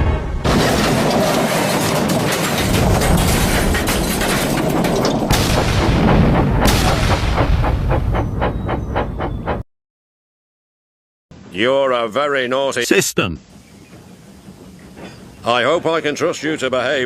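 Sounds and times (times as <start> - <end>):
crash and boom rumbling roar: 0.0 - 8.7.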